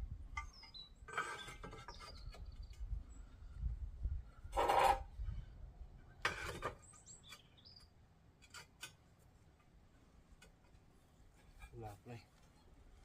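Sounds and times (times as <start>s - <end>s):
bird chirping: 0.4s - 3.4s, 6.8s - 8.0s
rasping scrape on roof tiles: 1.0s - 2.5s, 4.5s - 5.1s, 6.2s - 7.6s, 8.4s - 9.3s.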